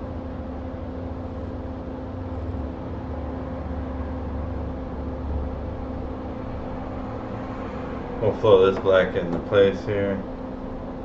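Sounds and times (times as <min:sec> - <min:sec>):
low electrical hum: 0:00.0 - 0:11.0
hot air rework station blowing: 0:03.9 - 0:11.0.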